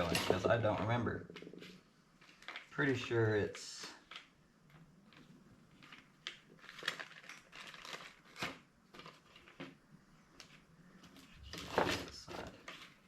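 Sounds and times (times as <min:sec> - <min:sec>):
plastic packaging crinkling: 0:02.2 - 0:02.8, 0:05.0 - 0:09.8.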